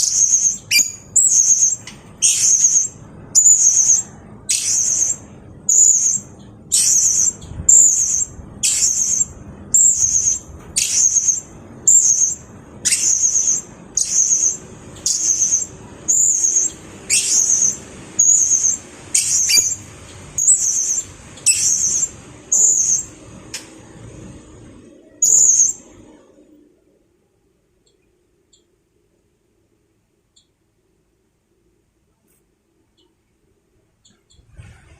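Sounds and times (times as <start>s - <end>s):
parrot high-pitched calls: 0.0s - 23.1s, 25.2s - 25.8s.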